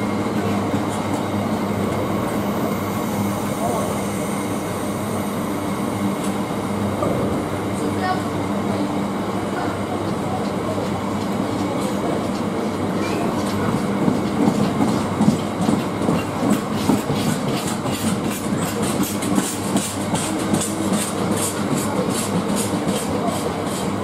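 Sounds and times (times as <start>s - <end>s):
freight train rumbling: 0.0s - 24.0s.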